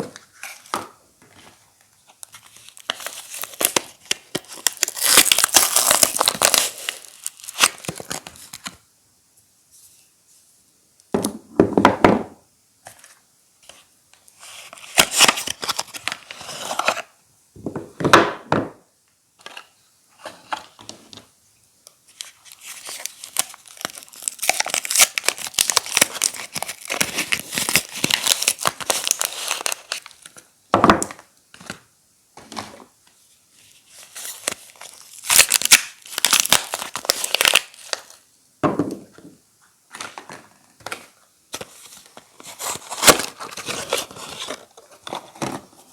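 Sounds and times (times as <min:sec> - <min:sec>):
wrappers crinkling: 0:02.2 - 0:08.6, 0:22.2 - 0:30.3, 0:33.8 - 0:38.2
wrappers tearing: 0:02.6 - 0:08.2, 0:22.3 - 0:30.2, 0:34.0 - 0:38.1.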